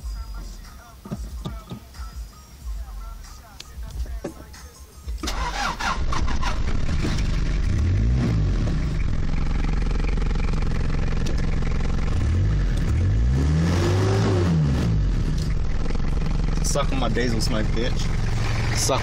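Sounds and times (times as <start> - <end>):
diesel car engine starting and revving: 5.2 - 19.0.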